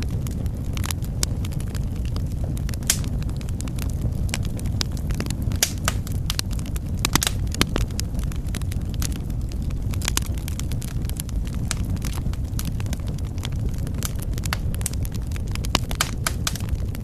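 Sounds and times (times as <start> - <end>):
fire pops and snaps: 0.0 - 17.0
low rush of flames: 0.0 - 17.0.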